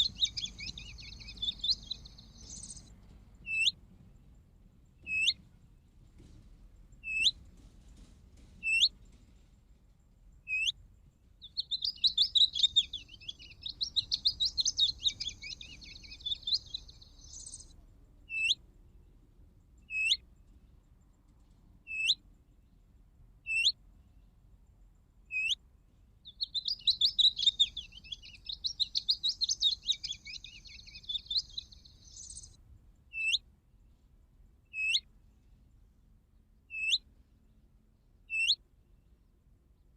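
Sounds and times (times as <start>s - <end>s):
chattering bird song: 0.0s - 3.8s, 5.0s - 5.4s, 7.0s - 7.4s, 8.6s - 9.0s, 10.3s - 10.8s, 11.4s - 18.6s, 19.6s - 20.6s, 21.9s - 22.2s, 23.5s - 23.8s, 25.3s - 25.6s, 26.2s - 33.4s, 34.7s - 35.0s, 36.7s - 37.0s, 38.3s - 38.6s.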